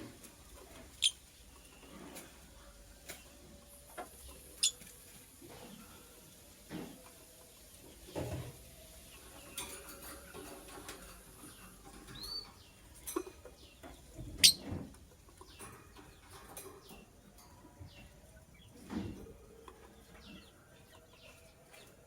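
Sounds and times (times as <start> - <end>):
bird chirp: 0.6 - 2.3, 4.2 - 4.9, 7.8 - 22.0
knocks and thumps in cage: 8.1 - 8.6, 13.0 - 17.0, 18.8 - 19.5.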